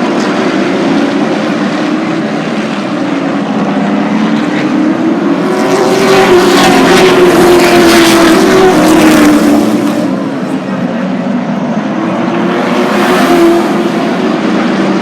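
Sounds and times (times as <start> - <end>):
race truck engines passing: 0.0 - 15.0.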